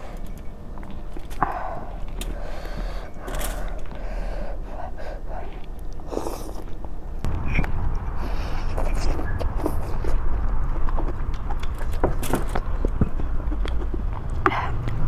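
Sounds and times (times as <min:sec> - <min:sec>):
breaths and sniffs: 0:00.0 - 0:07.2, 0:07.9 - 0:15.0
person chewing food: 0:00.0 - 0:15.0.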